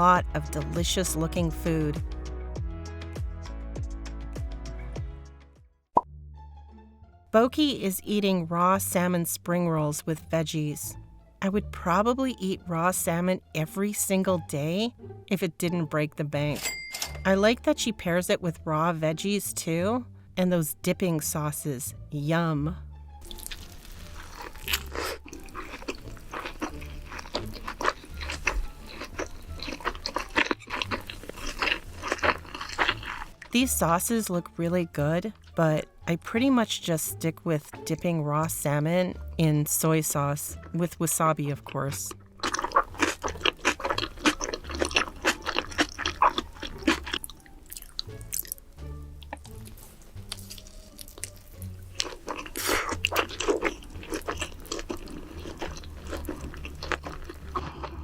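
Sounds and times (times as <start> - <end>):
crisp chewing crunches: 23.2 - 33.6, 42.0 - 48.6, 49.2 - 58.0.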